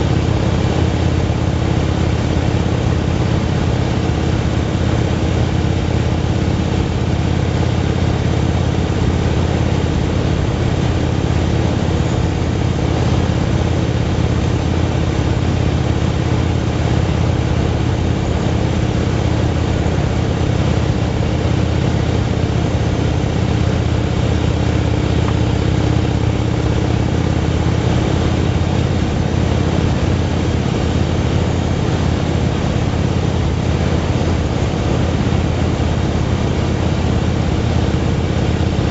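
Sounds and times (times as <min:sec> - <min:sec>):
motorcycle engine cruising: 0:00.0 - 0:38.9
steady rushing noise: 0:00.0 - 0:38.9.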